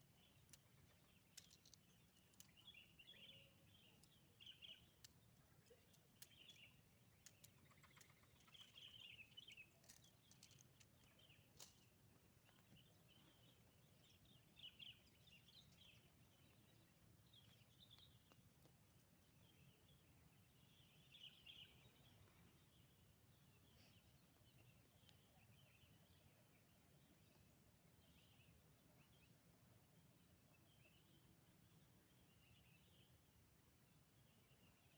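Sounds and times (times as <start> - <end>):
faint bird chirps: 0.0 - 11.8.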